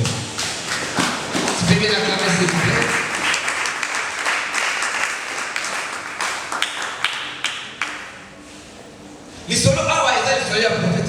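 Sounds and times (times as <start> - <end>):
congregation applauding: 0.0 - 8.4.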